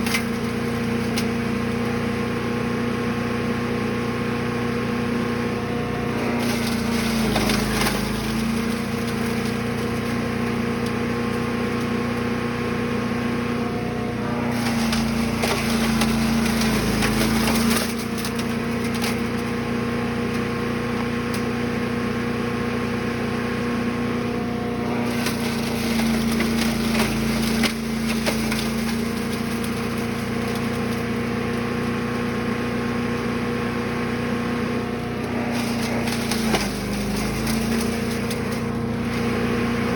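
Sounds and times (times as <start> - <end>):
wood being chipped and crunched: 0.0 - 2.0, 6.1 - 12.2, 14.2 - 21.5, 24.8 - 32.3, 35.0 - 39.9
chipper engine running: 0.0 - 39.9.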